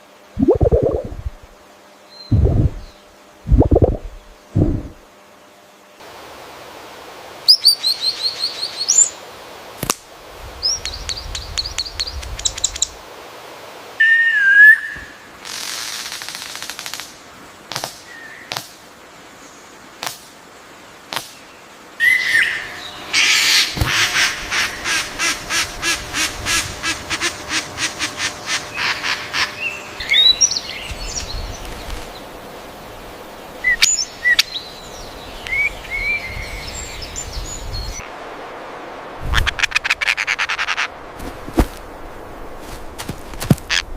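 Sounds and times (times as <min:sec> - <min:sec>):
rhythmic bird notes: 0:00.4 - 0:01.3
birds chirping and whistling: 0:28.8 - 0:31.6, 0:33.7 - 0:38.0.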